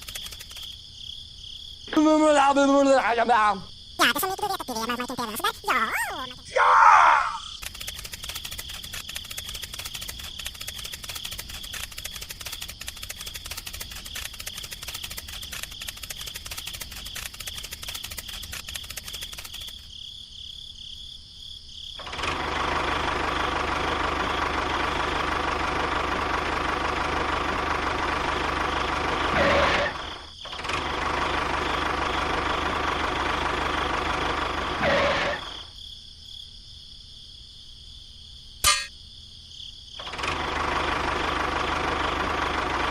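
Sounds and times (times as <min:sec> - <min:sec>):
fast even ticking: 0:00.0 - 0:00.8, 0:07.5 - 0:19.9
small engine running: 0:00.0 - 0:00.8, 0:07.6 - 0:19.9, 0:22.0 - 0:35.7, 0:40.0 - 0:42.9.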